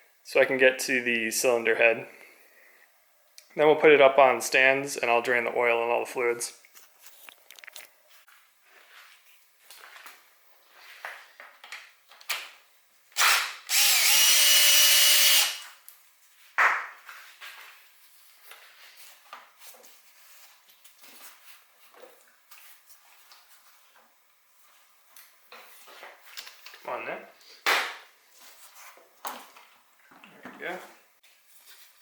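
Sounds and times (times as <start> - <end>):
cordless drill running: 13.2 - 15.6.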